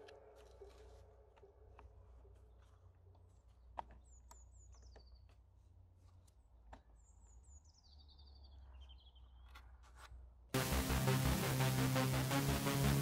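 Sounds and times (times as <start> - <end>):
songbird chirping: 0.0 - 9.7.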